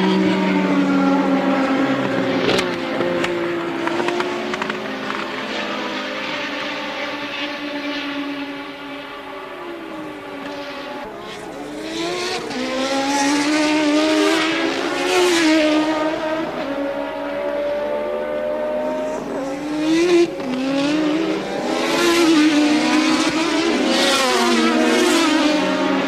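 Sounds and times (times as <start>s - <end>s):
racing car engines revving: 0.0s - 26.0s.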